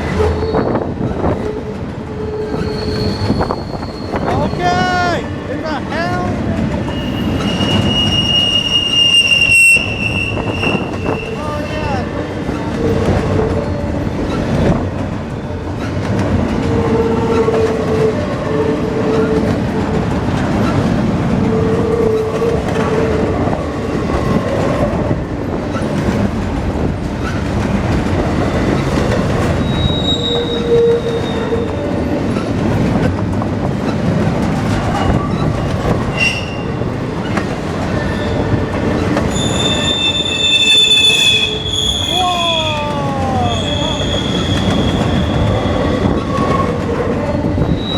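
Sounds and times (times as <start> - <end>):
train wheel squeal: 0.0 - 4.7, 6.7 - 14.8, 15.8 - 19.7, 27.2 - 27.5, 28.4 - 33.1, 33.8 - 47.9
train wheels clattering on rail: 0.0 - 42.1, 43.5 - 47.9.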